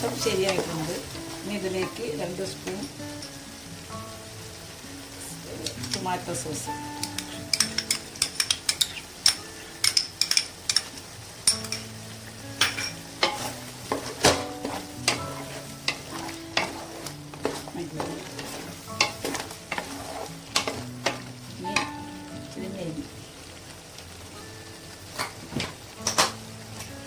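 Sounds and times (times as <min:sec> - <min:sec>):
low sizzle: 0:00.0 - 0:27.0
spoon clinking against pot: 0:07.1 - 0:11.9.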